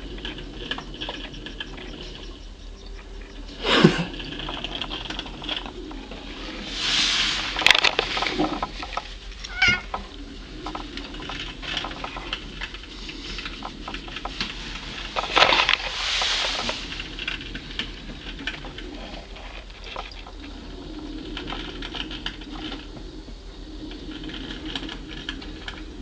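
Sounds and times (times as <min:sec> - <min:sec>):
rushing noise: 0:02.5 - 0:19.8
cat chirping and chattering: 0:09.5 - 0:09.9.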